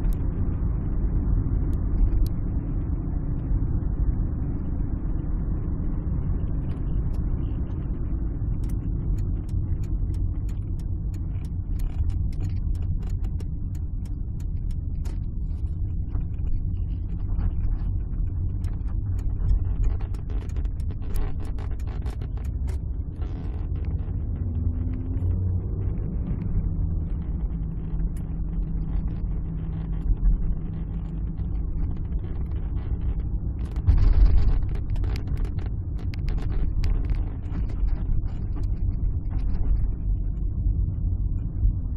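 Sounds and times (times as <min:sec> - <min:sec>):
engine and road rumble: 0:00.0 - 0:41.9
light clicks and rattles: 0:08.6 - 0:24.0.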